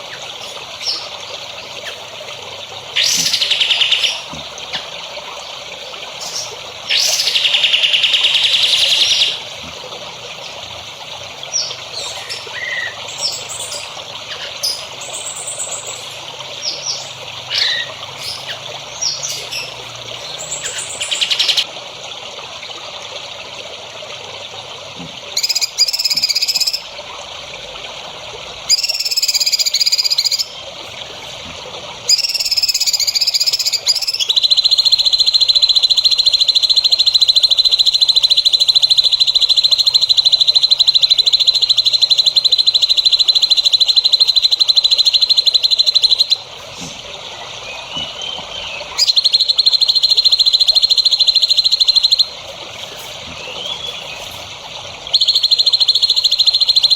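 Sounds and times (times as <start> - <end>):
songbird buzzy trills: 0.0 - 21.7, 25.2 - 56.9
bird chirps: 3.0 - 4.9, 6.2 - 9.5, 11.5 - 21.7, 25.4 - 26.9, 28.7 - 30.6, 32.1 - 46.9, 47.6 - 56.9.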